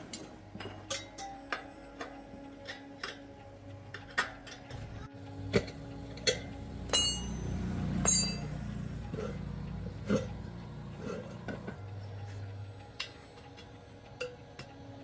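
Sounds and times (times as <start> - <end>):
metal tools clinking and tapping: 0.0 - 14.7
ringing metallic strikes: 4.7 - 12.1.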